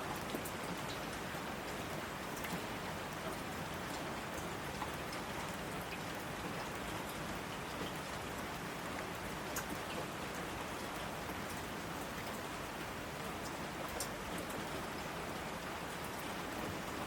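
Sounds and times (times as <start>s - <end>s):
steady rainfall: 0.0s - 17.0s
rain drop ticks: 0.1s - 8.0s, 9.0s - 11.6s.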